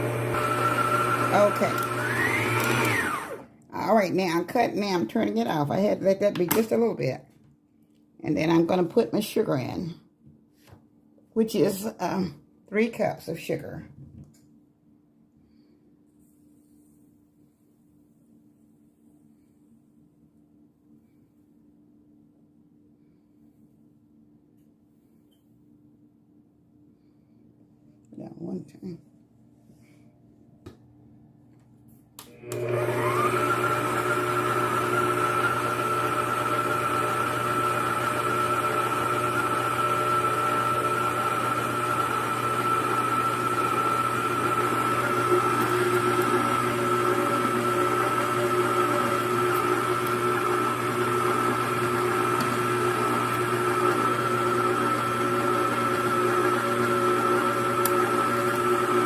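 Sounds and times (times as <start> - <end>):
electric mixer motor whining: 0.0 - 3.5, 32.2 - 59.0.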